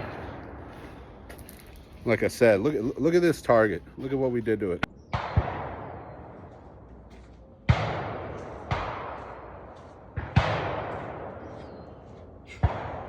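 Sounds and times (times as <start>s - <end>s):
gunshots with long echo: 0.0s - 1.2s, 5.1s - 6.9s, 7.6s - 13.0s.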